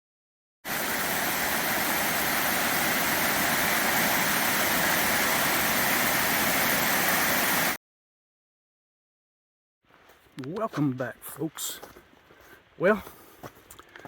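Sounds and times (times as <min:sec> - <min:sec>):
running water rushing: 0:00.7 - 0:07.8.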